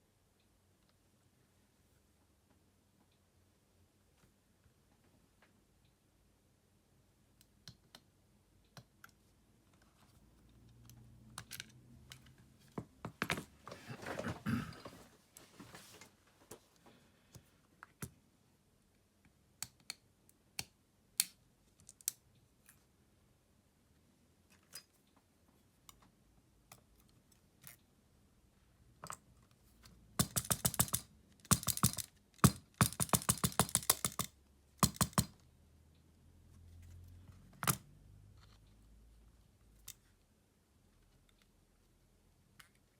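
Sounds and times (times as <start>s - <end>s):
tools and plastic parts clicking: 10.6s - 13.5s, 20.6s - 22.8s, 30.2s - 35.4s, 37.3s - 38.7s.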